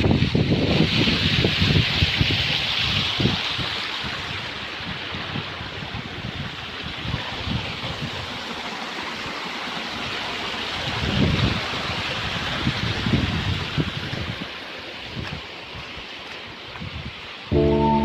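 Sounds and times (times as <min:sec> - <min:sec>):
waterfall rushing over rocks: 0:00.0 - 0:18.0
wind buffeting microphone: 0:10.8 - 0:15.9.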